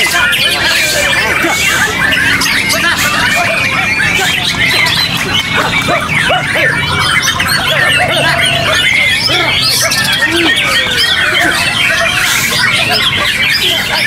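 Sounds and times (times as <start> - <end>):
birds singing whistled phrases: 0.0 - 14.0.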